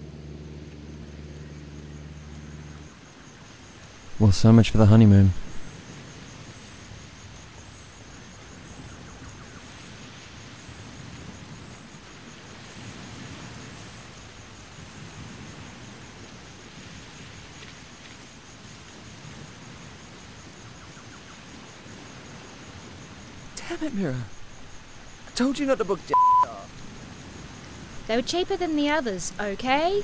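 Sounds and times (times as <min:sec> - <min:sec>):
unsteady low rumble: 0:00.0 - 0:03.0
even outdoor hiss: 0:00.0 - 0:30.0.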